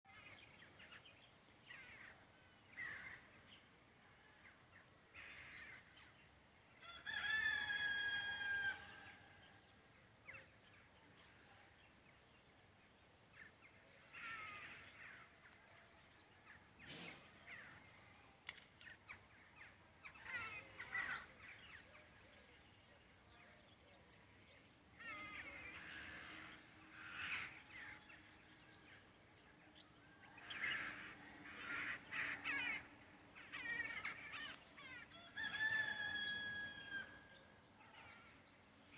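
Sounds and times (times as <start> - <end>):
rooster crowing: 6.8 - 9.1, 35.2 - 37.3
birds calling: 24.8 - 38.9.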